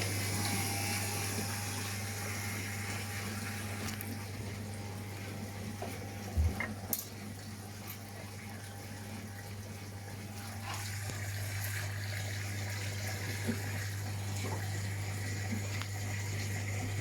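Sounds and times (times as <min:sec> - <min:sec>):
water filling washing machine drum: 0:00.0 - 0:17.0.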